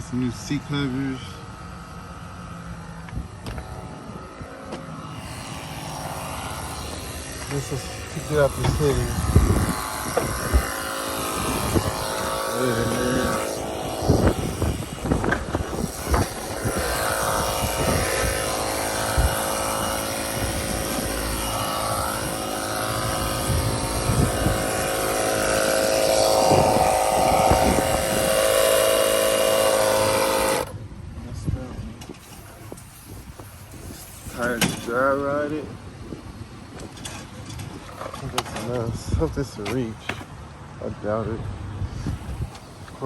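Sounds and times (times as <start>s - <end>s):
small motor droning: 0.0s - 30.8s.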